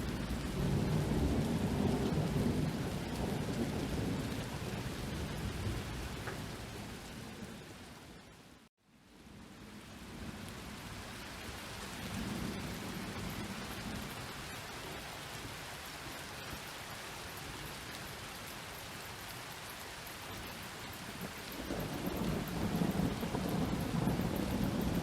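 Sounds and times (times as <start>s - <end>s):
distant thunder rumble: 0.0s - 7.6s, 20.9s - 25.0s
rain hiss: 0.0s - 25.0s.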